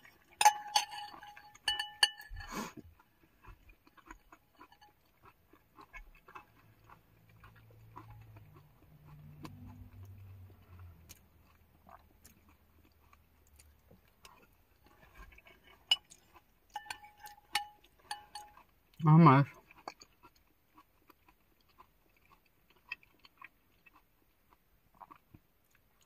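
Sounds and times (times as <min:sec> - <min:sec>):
person chewing: 0:00.0 - 0:26.0.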